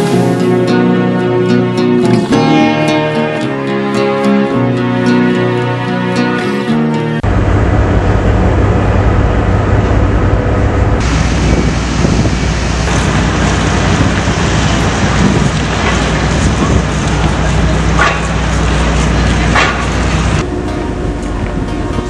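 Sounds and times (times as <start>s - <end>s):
rushing wind noise: 7.2s - 22.0s.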